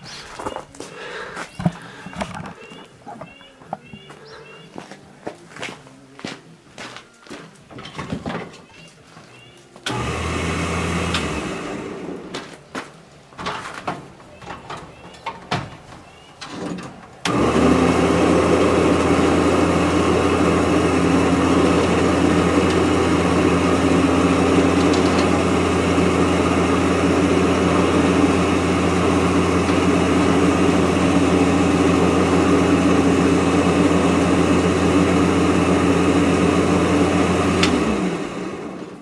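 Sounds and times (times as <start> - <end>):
electric hoist motor whining: 9.8 - 12.4, 16.1 - 39.0.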